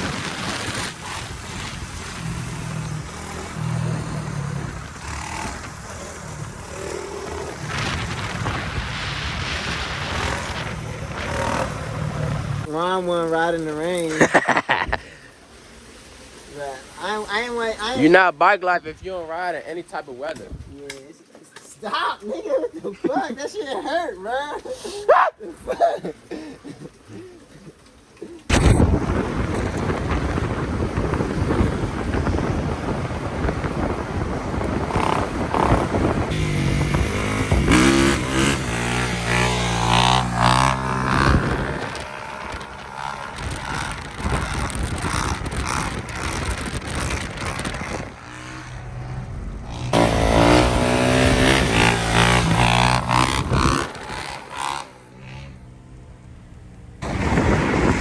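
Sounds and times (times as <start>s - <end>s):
motorcycle engine revving: 0.0s - 12.8s, 29.0s - 58.0s
road and wind noise: 0.0s - 22.1s, 27.7s - 58.0s.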